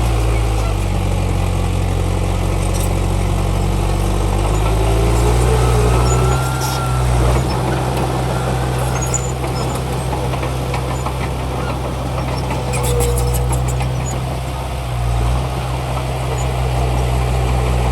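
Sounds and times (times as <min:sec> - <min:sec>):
diesel machinery engine running: 0:00.0 - 0:17.9
faint high squeal: 0:05.2 - 0:09.9.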